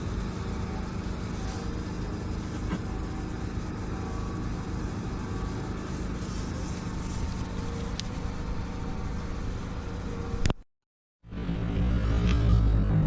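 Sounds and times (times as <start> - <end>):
vehicle rumble with hum: 0.0 - 10.6, 11.2 - 13.0.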